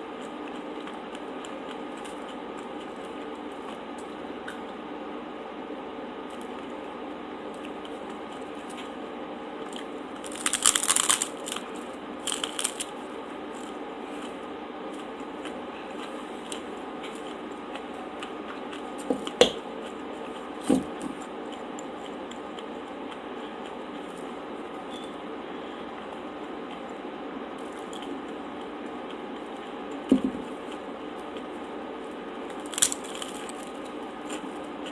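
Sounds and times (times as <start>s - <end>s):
crunching bites into taco shell: 9.7s - 13.0s, 32.5s - 34.9s.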